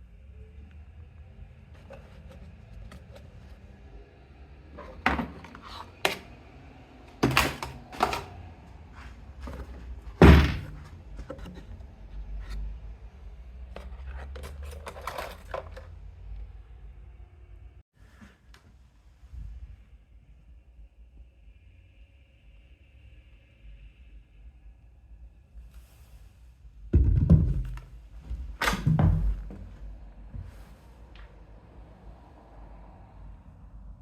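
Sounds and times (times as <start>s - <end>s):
hard objects knocking and clunking: 7.1s - 8.4s, 9.4s - 11.8s, 27.0s - 29.8s.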